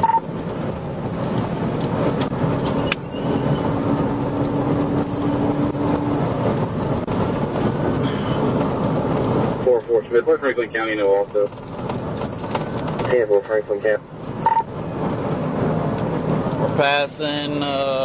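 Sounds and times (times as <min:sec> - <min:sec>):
car engine tyre and wind noise: 0:00.0 - 0:18.0.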